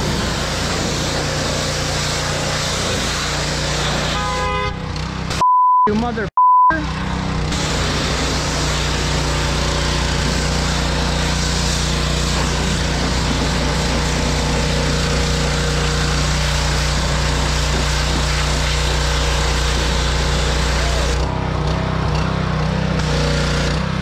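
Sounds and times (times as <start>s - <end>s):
engine running steadily: 6.0s - 24.0s.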